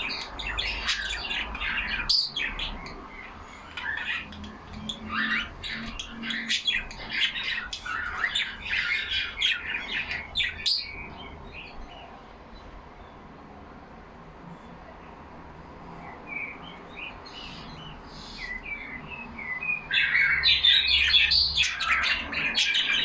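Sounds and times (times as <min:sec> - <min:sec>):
budgerigars chattering: 0:00.0 - 0:11.2, 0:16.6 - 0:23.0.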